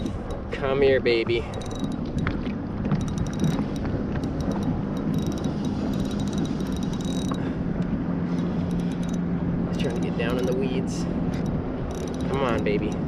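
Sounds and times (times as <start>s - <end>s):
steady low hum: 0.0s - 13.0s
fishing reel clicking: 1.4s - 2.1s, 3.0s - 7.4s, 8.4s - 9.2s, 9.8s - 13.0s.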